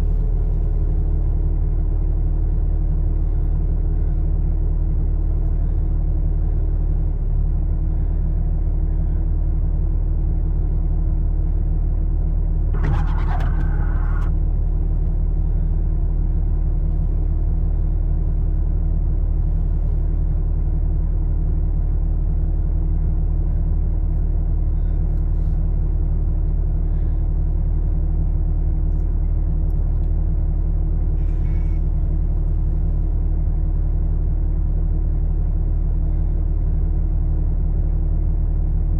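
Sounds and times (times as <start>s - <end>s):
vehicle engine idling: 0.0s - 38.9s
brief scrape: 12.8s - 14.3s.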